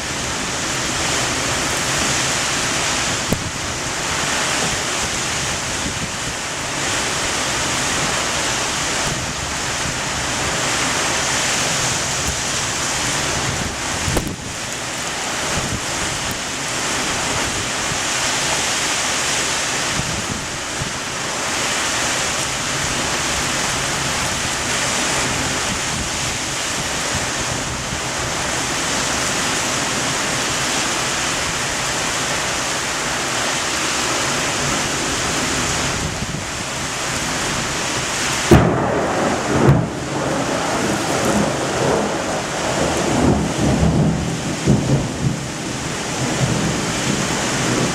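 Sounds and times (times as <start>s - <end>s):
heavy rain and wind: 0.0s - 47.9s
sharp crack: 38.5s - 40.1s.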